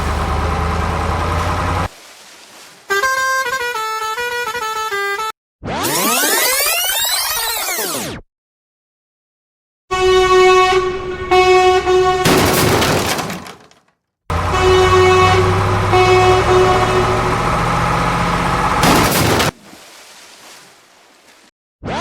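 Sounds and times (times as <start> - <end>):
truck horn honking: 0.0 - 1.9, 2.9 - 5.3, 9.9 - 12.6, 14.3 - 19.5
low engine rumble: 0.0 - 2.9, 10.4 - 12.8, 14.3 - 19.6.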